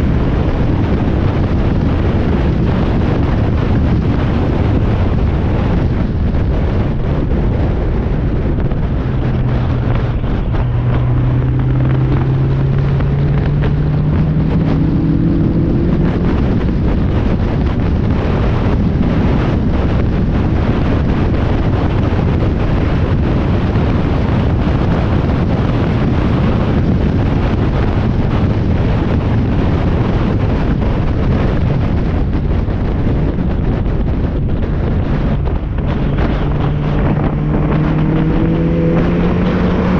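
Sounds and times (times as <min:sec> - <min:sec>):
road noise: 0:00.0 - 0:39.9
wind rushing over microphone: 0:00.0 - 0:39.9
race car engine accelerating: 0:08.4 - 0:17.4, 0:34.9 - 0:39.9.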